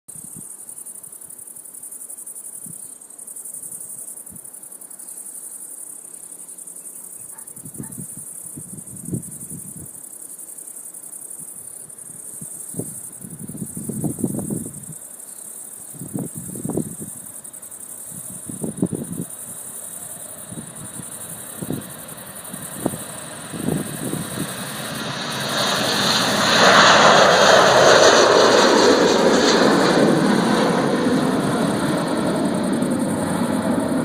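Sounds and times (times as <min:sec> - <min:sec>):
crickets chirping: 0:00.1 - 0:34.0
low gusty rumbles: 0:20.5 - 0:34.0.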